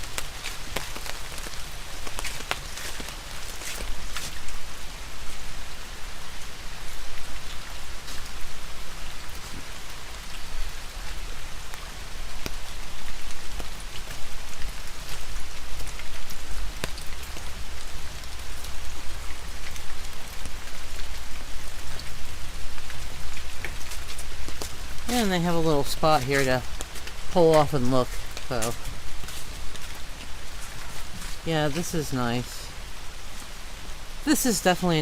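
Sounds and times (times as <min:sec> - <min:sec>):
rain tapping on umbrella: 0:00.0 - 0:04.7, 0:09.2 - 0:31.9.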